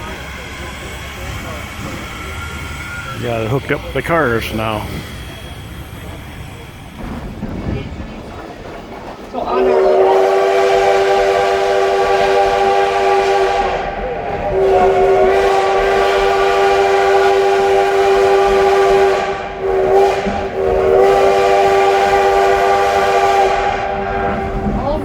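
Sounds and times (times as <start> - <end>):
steam locomotive chime whistle: 9.5 - 24.9.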